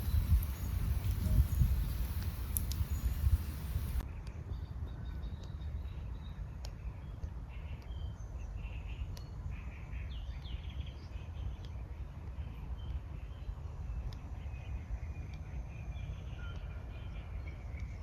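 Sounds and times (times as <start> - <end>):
birds chirping: 0.0 - 4.0
hiss: 0.0 - 4.0
sharp clicks: 0.0 - 4.0
steady low rumble: 0.0 - 10.0.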